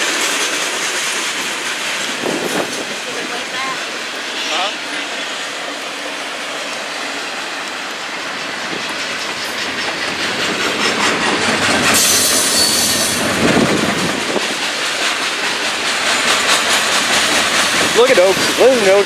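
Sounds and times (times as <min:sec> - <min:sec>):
train wheels clattering on rails: 0:00.0 - 0:19.0
high wheel squeal: 0:09.1 - 0:13.4.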